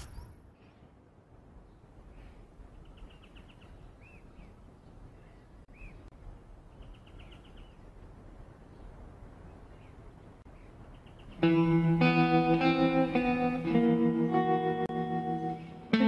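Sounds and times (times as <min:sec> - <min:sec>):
faint bird trills and chirps: 0:00.0 - 0:01.0, 0:01.6 - 0:11.6.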